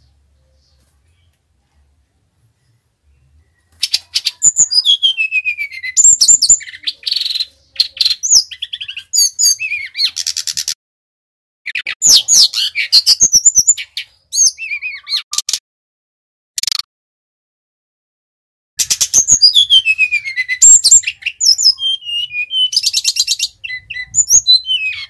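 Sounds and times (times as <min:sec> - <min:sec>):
flycatcher singing chirps and whistles: 0:03.8 - 0:10.7, 0:11.7 - 0:15.4, 0:18.8 - 0:25.0.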